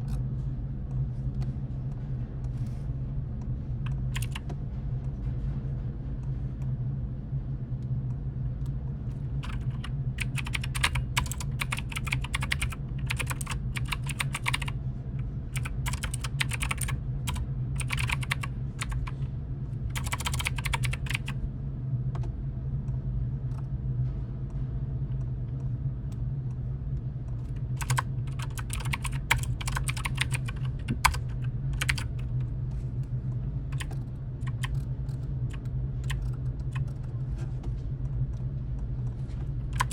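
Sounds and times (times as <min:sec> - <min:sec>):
steady low hum: 0:00.0 - 0:39.9
computer keyboard typing: 0:03.9 - 0:04.4, 0:09.4 - 0:14.8, 0:15.5 - 0:19.2, 0:19.9 - 0:21.4, 0:27.5 - 0:32.4, 0:33.7 - 0:37.2.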